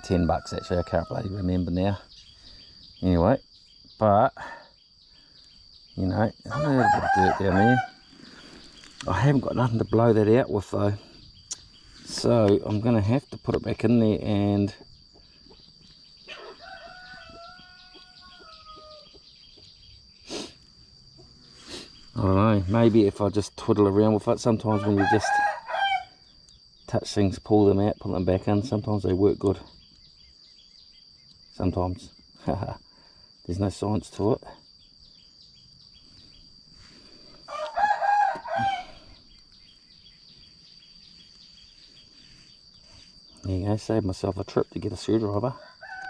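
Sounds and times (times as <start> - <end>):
rooster crowing: 0.0 - 1.5, 6.4 - 8.1, 16.3 - 19.3, 24.6 - 26.2, 37.4 - 39.2, 45.4 - 46.0
high insect buzz: 0.0 - 46.0.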